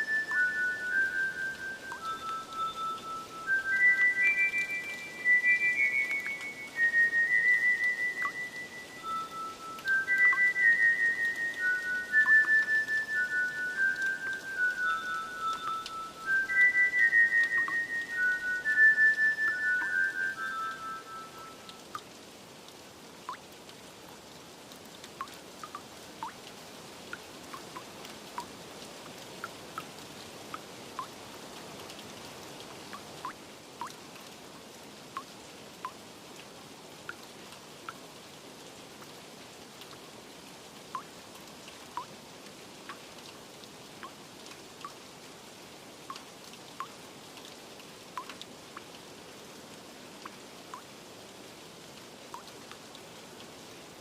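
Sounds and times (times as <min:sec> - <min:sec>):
water drops plinking: 0:00.0 - 0:22.1, 0:25.2 - 0:26.4
steady rain: 0:00.0 - 0:54.0.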